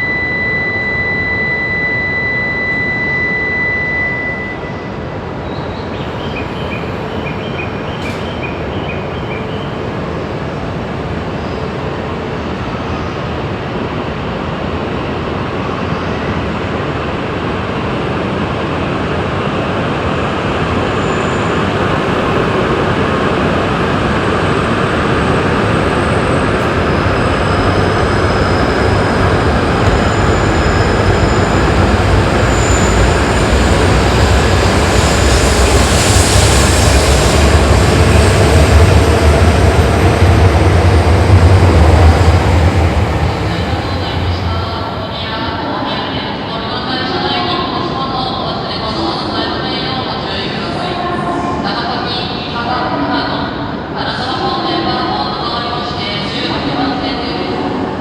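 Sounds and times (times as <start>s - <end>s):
steady high electronic tone: 0.0s - 6.8s, 24.0s - 45.6s
high-speed train rushing: 0.0s - 58.0s.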